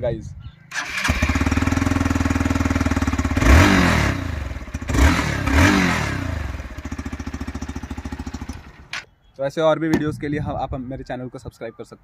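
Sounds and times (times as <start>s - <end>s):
motorcycle engine revving: 0.7s - 9.0s
motorcycle engine idling: 0.8s - 9.0s.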